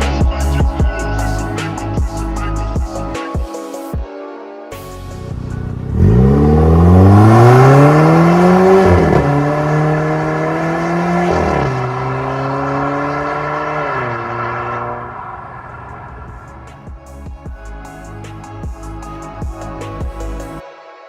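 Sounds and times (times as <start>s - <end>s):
car exhaust accelerating hard: 5.7s - 16.8s.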